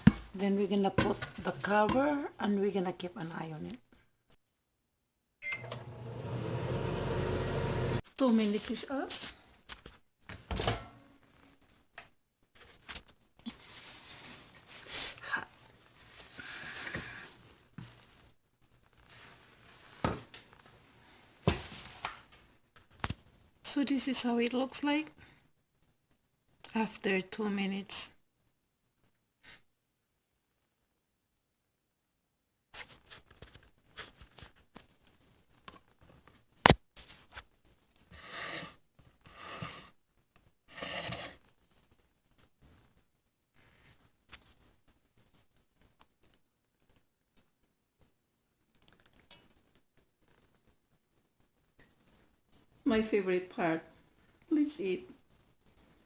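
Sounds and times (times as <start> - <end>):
scraping or rustling: 12.5 - 22.3, 37.0 - 40.0, 40.7 - 41.5
rustle: 13.5 - 15.2.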